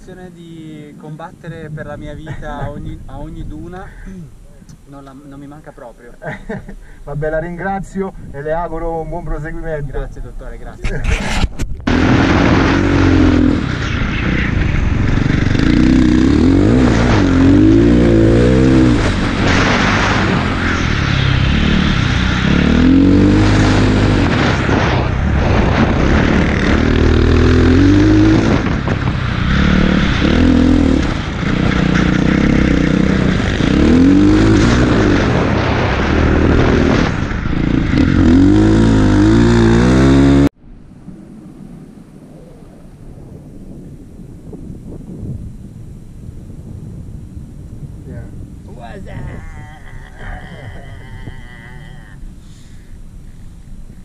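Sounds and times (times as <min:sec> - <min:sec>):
dirt bike engine revving: 0:11.9 - 0:40.5.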